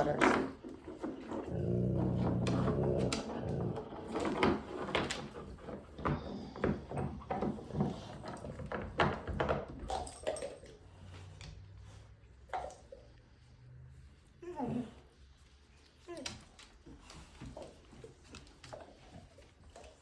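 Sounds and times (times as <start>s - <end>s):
dog growling: 1.2s - 4.6s, 14.4s - 15.1s.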